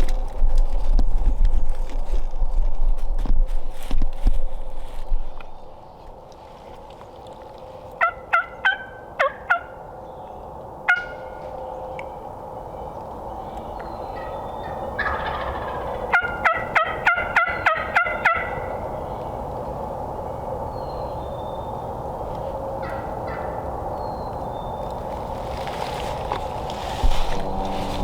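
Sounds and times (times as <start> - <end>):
turkey yelping: 8.0 - 9.8, 14.2 - 18.9.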